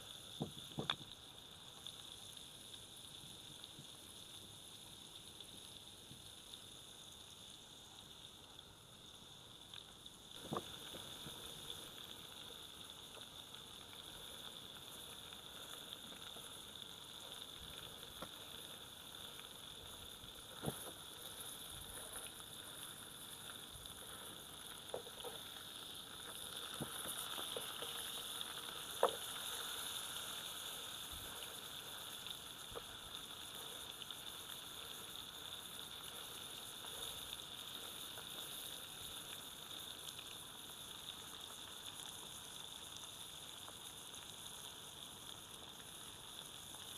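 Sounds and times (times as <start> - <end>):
steak sizzling: 0.0 - 46.9.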